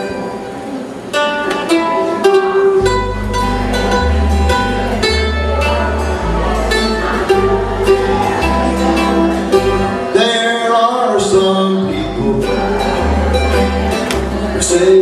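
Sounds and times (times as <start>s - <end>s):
picked acoustic guitar: 0.0s - 15.0s
bass line: 2.7s - 10.4s, 11.2s - 15.0s.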